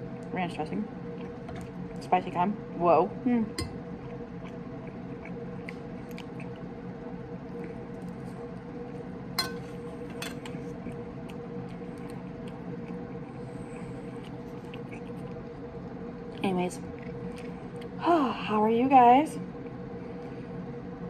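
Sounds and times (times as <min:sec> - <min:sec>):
steady low hum: 0:00.0 - 0:21.0
person chewing food: 0:03.7 - 0:09.1, 0:09.7 - 0:15.6, 0:16.8 - 0:18.0.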